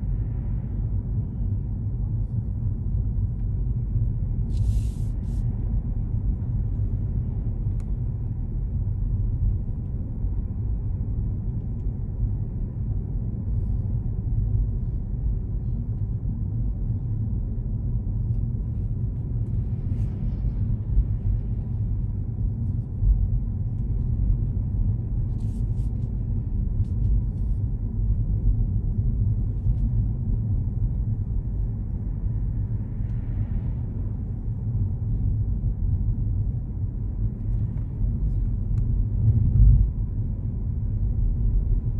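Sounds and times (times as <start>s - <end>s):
car driving rumble: 0.0s - 41.9s.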